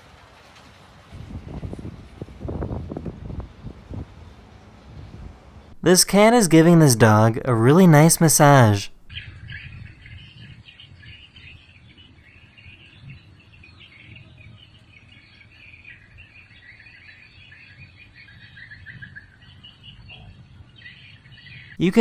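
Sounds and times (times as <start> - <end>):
birds chirping: 5.8 - 22.0.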